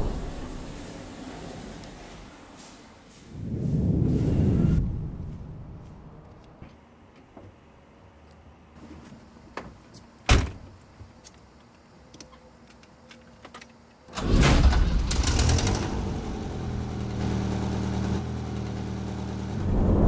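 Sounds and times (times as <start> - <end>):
car engine starting and idling: 14.1 - 20.0.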